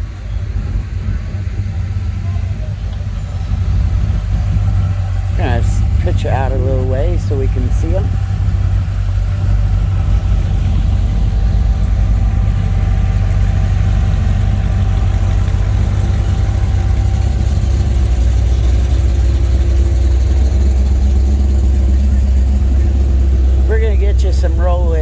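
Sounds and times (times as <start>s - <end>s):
car engines rumbling: 0.0s - 25.0s.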